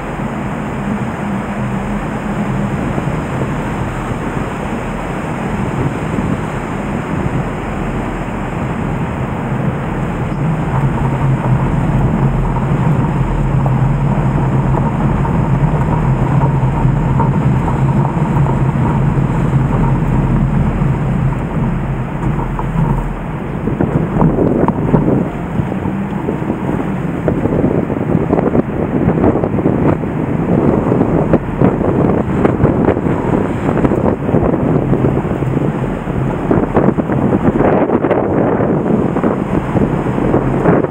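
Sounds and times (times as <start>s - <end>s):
river rushing: 0.0s - 40.9s.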